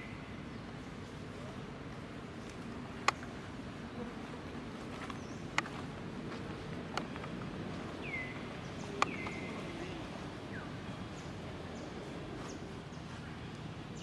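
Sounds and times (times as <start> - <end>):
outdoor background: 0.0 - 14.0
sharp clicks: 3.0 - 3.3.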